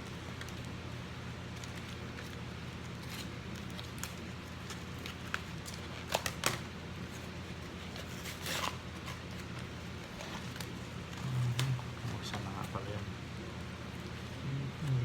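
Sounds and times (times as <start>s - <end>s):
card package crinkling and clicking: 0.0s - 12.9s
steady low hum: 0.0s - 15.0s
package rustling: 1.4s - 12.8s.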